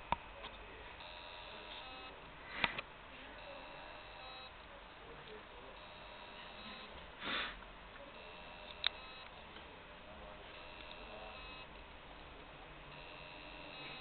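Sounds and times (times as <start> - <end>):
faint high-pitched beeping: 1.0 - 2.2, 3.2 - 7.1, 8.0 - 11.8, 12.8 - 14.0
breathy sniff: 2.4 - 2.8, 7.2 - 7.6.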